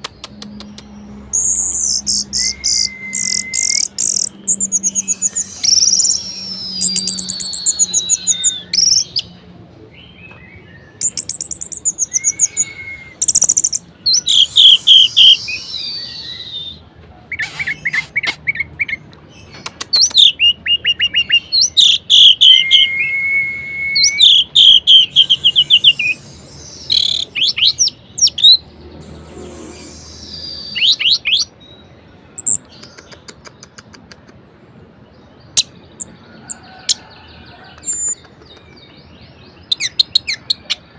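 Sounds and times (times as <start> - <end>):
thrush singing trills and whistles: 0.0 - 9.3, 10.9 - 19.0, 19.9 - 31.8.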